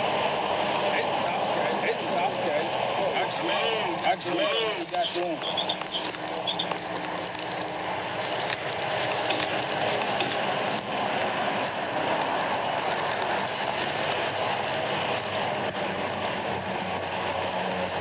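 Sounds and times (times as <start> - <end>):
faint engine hum: 0.0 - 18.0
road and wind noise: 0.0 - 18.0.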